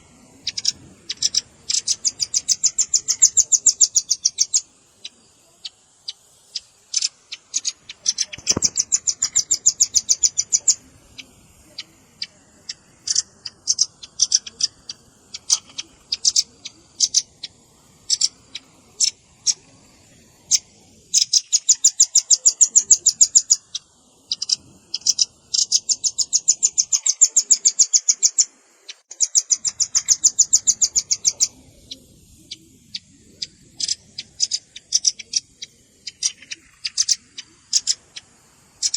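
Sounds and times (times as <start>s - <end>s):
nuthatch chips and trills: 0.0s - 38.9s.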